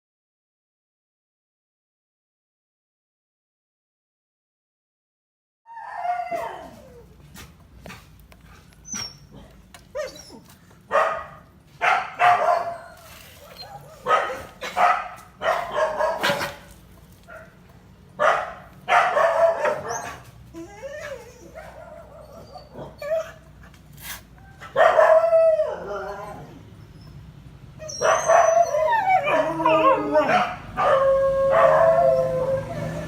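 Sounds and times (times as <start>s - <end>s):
dog barking: 10.9s - 16.7s, 18.2s - 20.2s, 24.7s - 25.2s, 30.2s - 32.0s.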